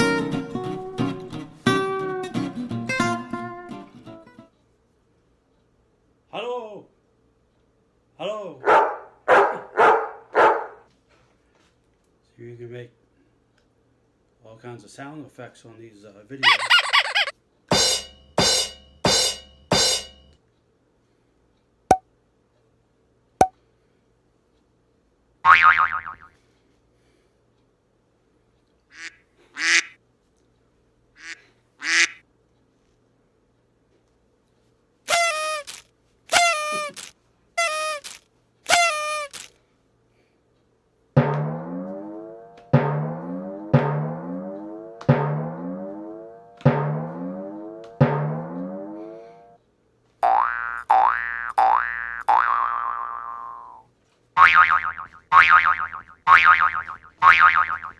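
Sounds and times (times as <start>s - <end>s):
pitched drum hits: 17.7s - 20.3s, 41.2s - 46.0s, 46.6s - 48.9s
sharp knocks: 41.2s - 41.9s, 42.8s - 45.7s, 46.7s - 48.6s
wobbling tone: 41.2s - 49.6s, 54.4s - 57.9s.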